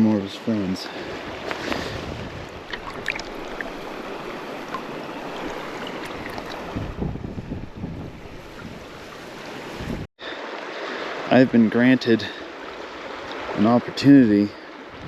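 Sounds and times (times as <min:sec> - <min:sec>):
river water rushing: 0:00.9 - 0:07.0, 0:08.2 - 0:13.6
wind on microphone: 0:01.2 - 0:10.1.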